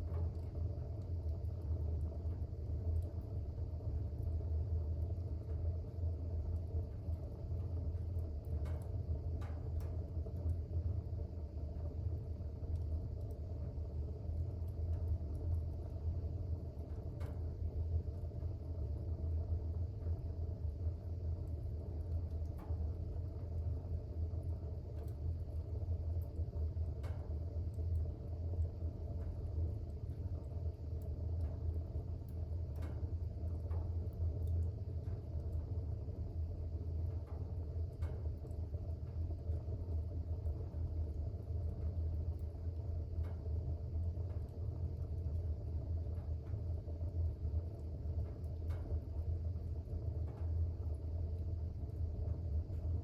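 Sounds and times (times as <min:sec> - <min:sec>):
fire crackling: 0:00.0 - 0:53.0
fire rumbling in fireplace: 0:00.0 - 0:53.0.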